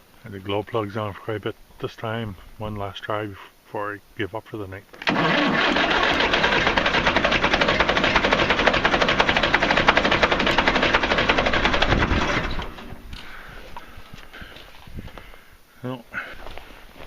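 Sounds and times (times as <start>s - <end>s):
starter motor cranking engine: 5.0s - 13.0s.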